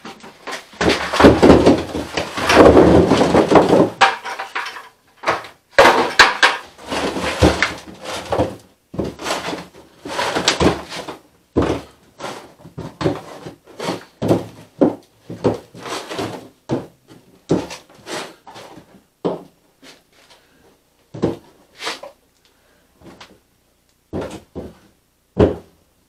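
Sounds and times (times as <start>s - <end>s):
sweet potatoes clattering on wood: 0.0s - 17.9s.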